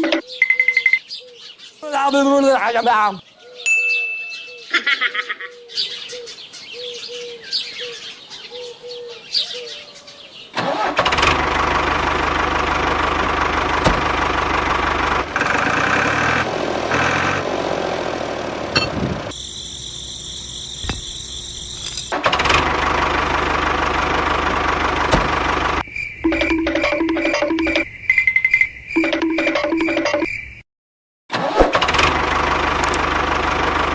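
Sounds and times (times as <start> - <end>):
birds chirping: 0.0 - 10.6, 18.8 - 22.2
engine running loudly: 10.7 - 20.1, 20.8 - 25.8, 31.7 - 33.9.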